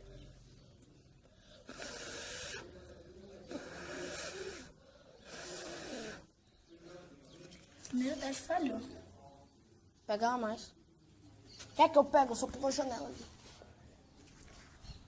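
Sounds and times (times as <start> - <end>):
person blowing on embers: 1.7 - 2.7, 3.5 - 6.3.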